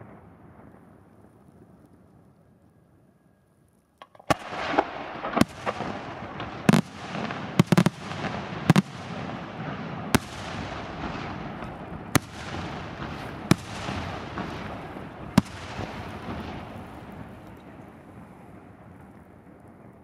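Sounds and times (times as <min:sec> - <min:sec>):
firework shells bursting: 0:04.0 - 0:17.8
rolling rumble and hiss: 0:04.1 - 0:20.0.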